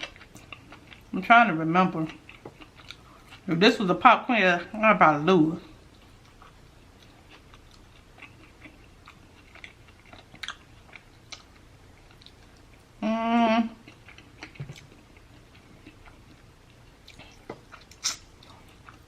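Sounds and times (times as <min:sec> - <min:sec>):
person chewing food: 0:00.0 - 0:01.1, 0:02.0 - 0:03.5, 0:05.7 - 0:13.0, 0:13.8 - 0:19.0.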